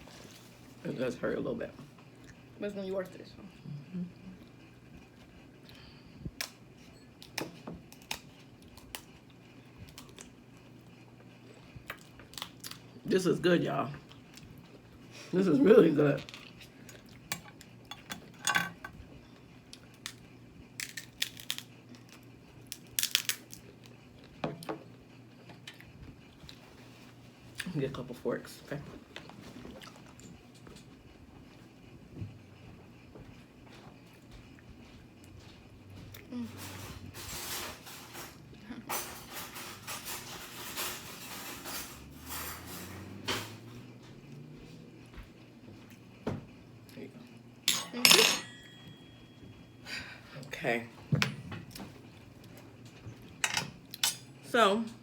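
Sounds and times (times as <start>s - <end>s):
crab shells crackling: 20.8s - 23.8s.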